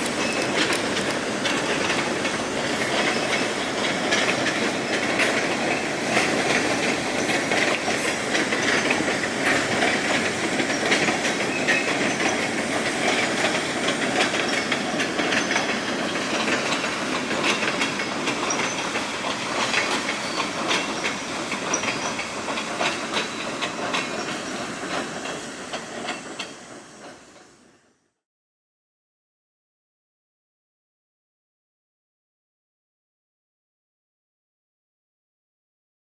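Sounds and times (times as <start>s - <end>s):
wheels clacking over rail joints: 0.0s - 27.8s
freight train rumbling: 0.0s - 28.2s.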